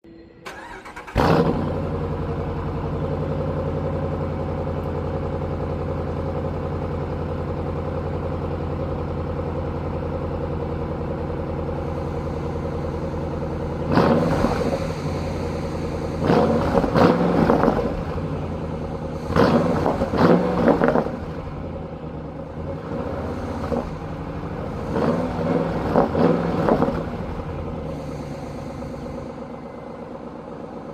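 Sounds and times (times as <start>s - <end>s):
engine revving blips: 0.3s - 2.0s, 11.9s - 18.3s, 19.2s - 21.5s, 22.8s - 30.1s
car engine idling: 0.4s - 30.9s
car engine starting: 0.4s - 30.9s.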